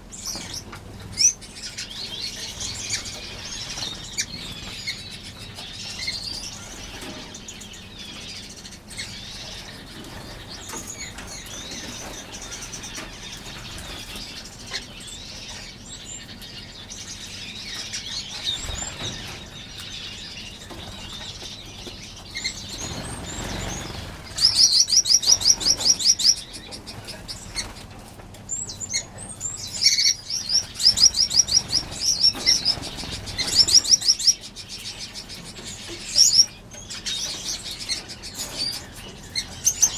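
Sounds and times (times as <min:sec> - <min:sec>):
finches chirping and twittering: 0:00.0 - 0:39.9
bird's rapidly repeated chirps: 0:18.1 - 0:27.8, 0:28.6 - 0:35.4.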